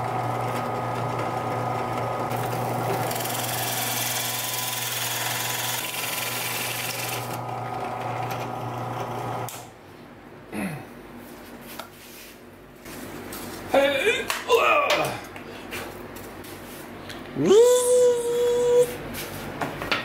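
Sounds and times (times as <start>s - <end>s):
power drill drilling into wood: 2.3s - 9.5s.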